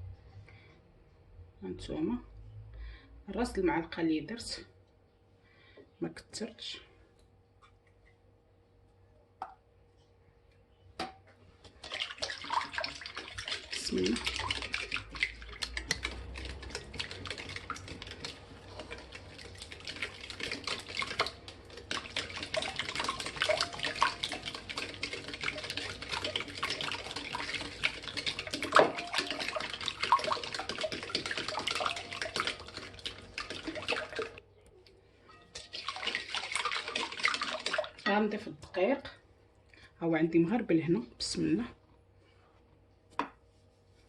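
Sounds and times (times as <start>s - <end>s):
batter whisked in bowl: 11.5s - 34.5s, 35.3s - 39.1s.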